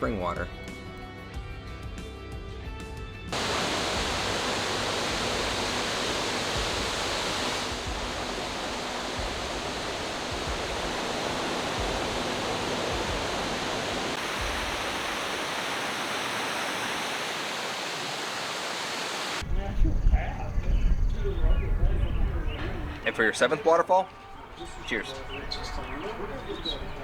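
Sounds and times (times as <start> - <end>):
water rushing over spillway: 3.4 - 19.4.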